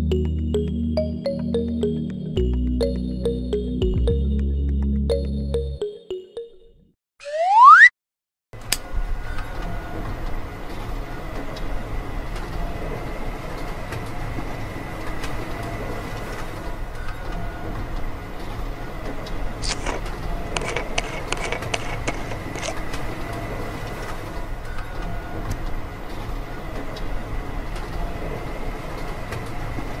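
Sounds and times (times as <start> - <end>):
low mechanical hum: 8.6 - 30.0.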